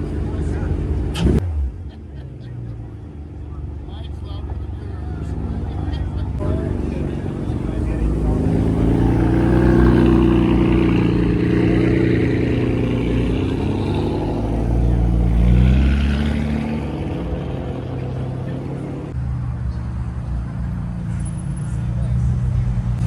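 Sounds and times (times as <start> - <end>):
car engine revving: 2.8 - 20.4.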